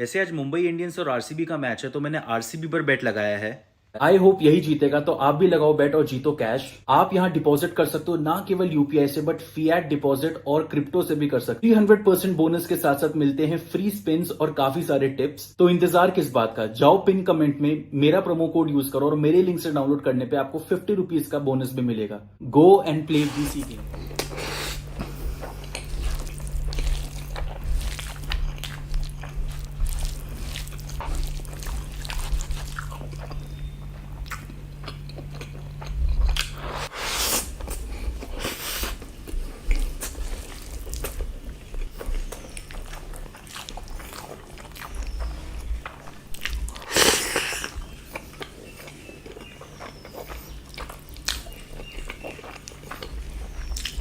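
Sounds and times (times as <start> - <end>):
steady low hum: 20.3 - 54.0
person chewing food: 23.1 - 54.0.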